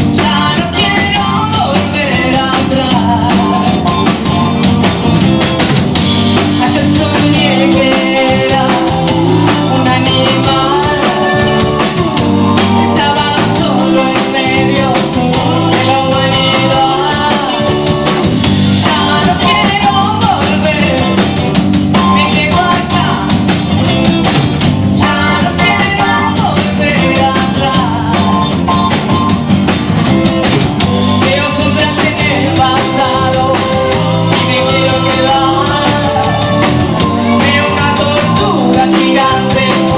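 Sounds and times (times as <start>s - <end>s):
live rock band with vocals: 0.0s - 39.9s.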